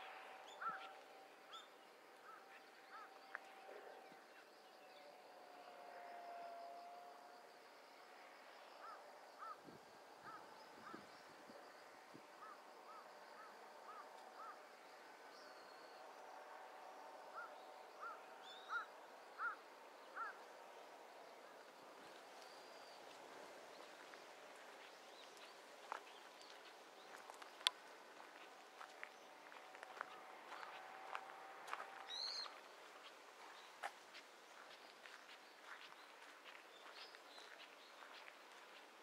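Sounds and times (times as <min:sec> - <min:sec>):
bird calling: 0:00.0 - 0:03.1, 0:17.4 - 0:19.6, 0:32.1 - 0:32.6
faint outdoor background: 0:00.0 - 0:39.0.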